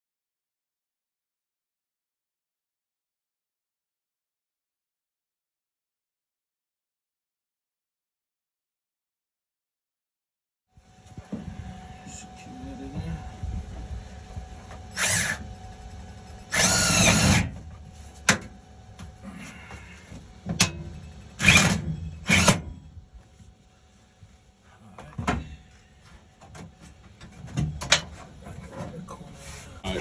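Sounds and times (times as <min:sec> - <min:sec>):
power drill driving screws: 0:16.5 - 0:17.5, 0:21.4 - 0:22.6.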